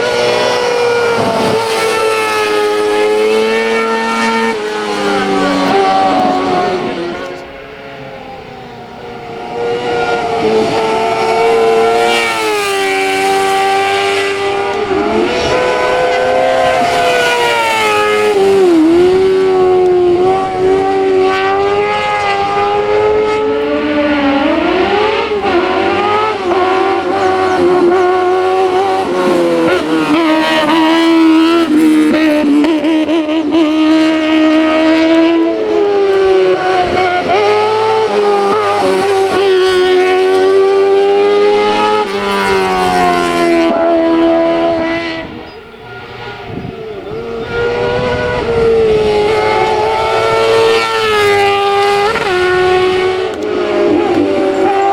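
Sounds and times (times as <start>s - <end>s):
racing car engine at full throttle: 0.0s - 54.9s.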